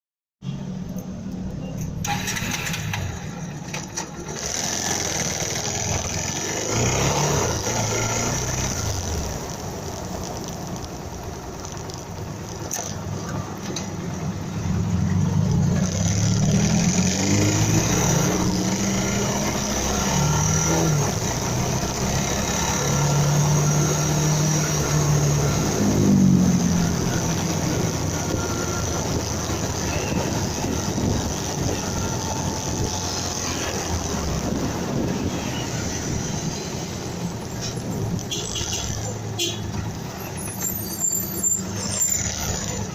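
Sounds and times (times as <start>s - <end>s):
motorcycle engine revving: 2.0s - 13.0s, 14.3s - 37.4s.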